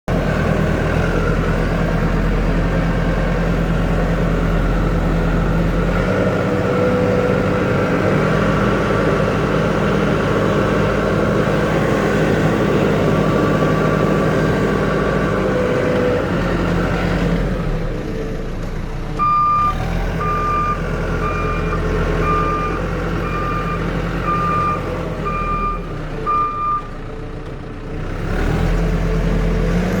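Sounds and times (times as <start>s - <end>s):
diesel engine running: 0.1s - 30.0s
reversing alarm beeping: 19.2s - 26.9s.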